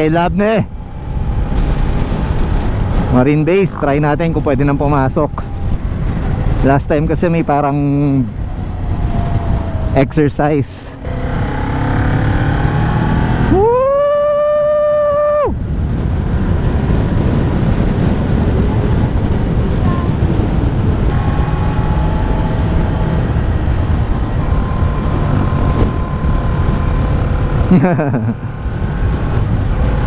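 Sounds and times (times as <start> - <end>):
wind rushing over microphone: 0.0 - 30.0
dirt bike engine running: 16.2 - 30.0.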